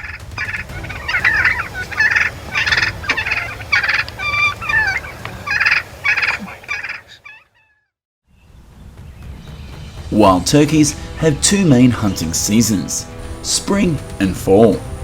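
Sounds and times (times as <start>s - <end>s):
turkeys gobbling: 0.0s - 7.8s.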